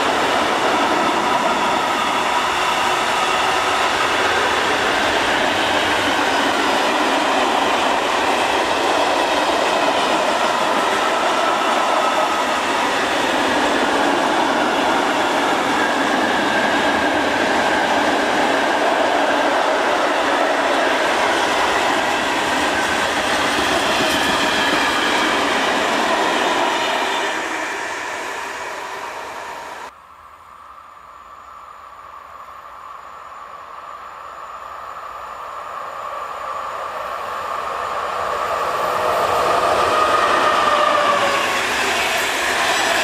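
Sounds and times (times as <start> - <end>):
freight train wagons rolling on rails: 0.0 - 29.0
electric locomotive passing: 0.0 - 43.0.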